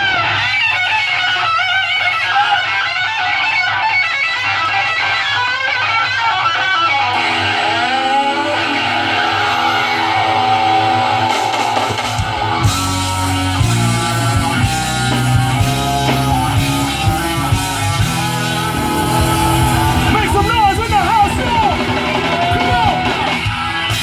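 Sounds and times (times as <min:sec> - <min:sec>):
drums: 0:00.0 - 0:24.0
electric guitar: 0:00.0 - 0:24.0
bass guitar: 0:12.1 - 0:24.0.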